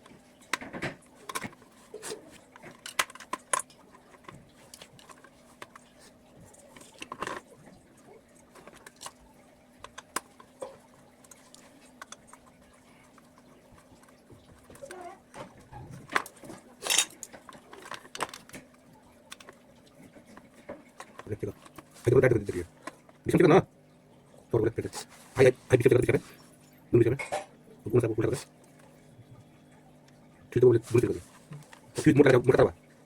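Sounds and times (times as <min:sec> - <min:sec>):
small metal objects clinking: 0:16.8 - 0:17.3.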